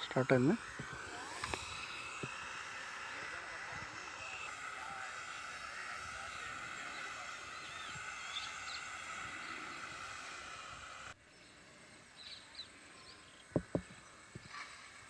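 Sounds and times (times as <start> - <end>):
birds chirping: 0.0 - 15.0
insects droning: 0.0 - 15.0
sharp thumps: 13.5 - 14.5.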